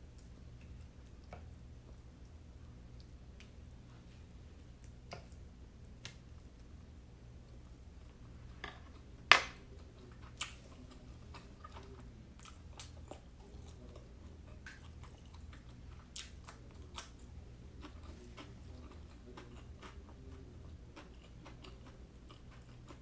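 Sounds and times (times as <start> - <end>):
close-up chewing and mouth sounds: 0.0 - 23.0.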